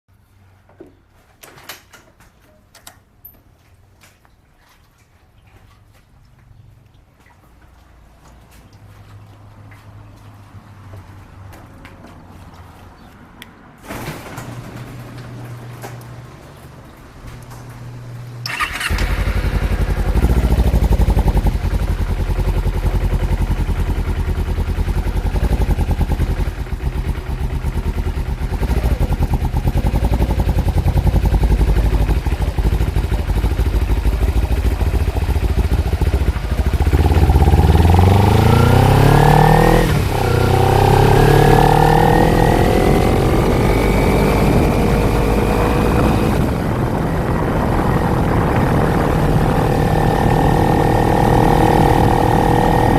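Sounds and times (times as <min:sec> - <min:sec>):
motorcycle engine accelerating: 0:17.4 - 0:52.9.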